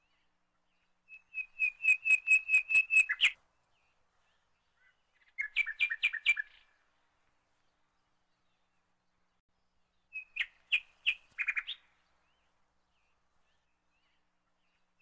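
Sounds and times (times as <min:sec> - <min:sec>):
bird whistling and chirping: 0:01.1 - 0:03.4, 0:05.3 - 0:06.6, 0:10.1 - 0:11.9.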